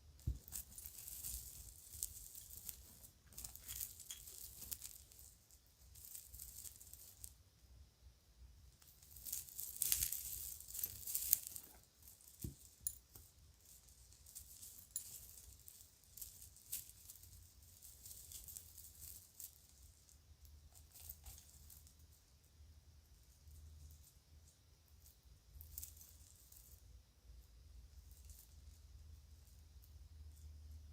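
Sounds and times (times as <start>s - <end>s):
small jewelry clicking and rattling: 0.2s - 7.4s, 8.8s - 22.1s, 24.9s - 26.9s.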